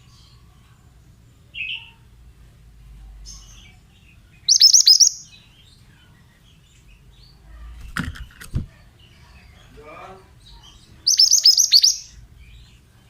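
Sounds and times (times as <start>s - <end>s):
faint bird chirp: 0.0s - 2.1s, 2.8s - 8.0s, 8.7s - 13.0s
bird singing sharp high notes: 4.5s - 5.4s, 11.0s - 12.2s.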